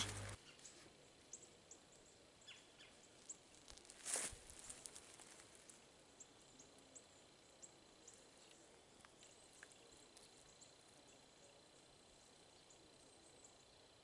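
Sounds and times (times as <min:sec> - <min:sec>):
faint high bird chirps: 0:00.0 - 0:03.4.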